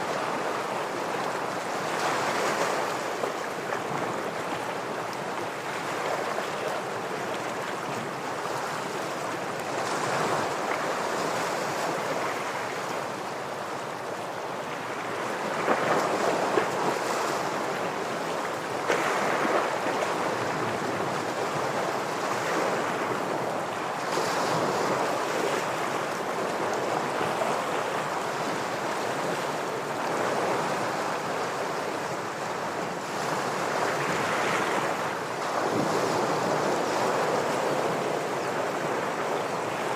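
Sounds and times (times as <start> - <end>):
ocean waves breaking on rocks: 14.8 - 39.9.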